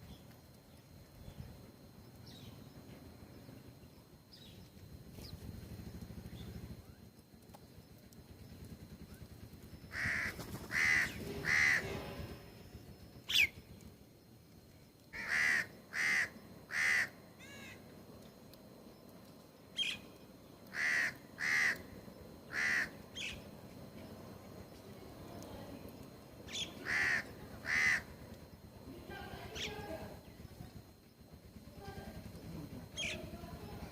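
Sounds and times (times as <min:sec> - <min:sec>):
bird harsh caw calls: 0:09.9 - 0:12.4, 0:15.2 - 0:17.8, 0:20.7 - 0:23.4, 0:26.5 - 0:28.2.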